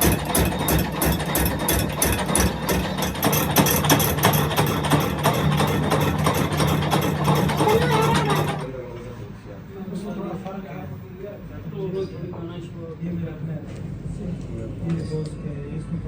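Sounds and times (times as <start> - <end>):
machine humming: 0.0 - 8.8.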